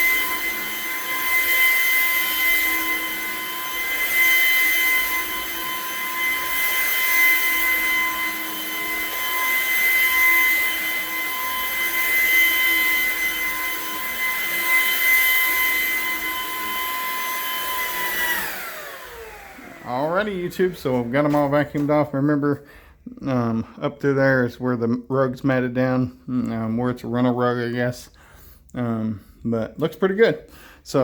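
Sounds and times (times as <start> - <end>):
vacuum cleaner whine: 0.0 - 23.4.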